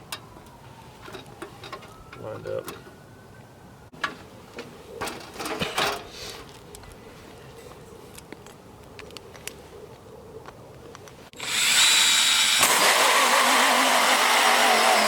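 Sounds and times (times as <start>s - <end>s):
power drill with hole saw: 11.4s - 15.0s.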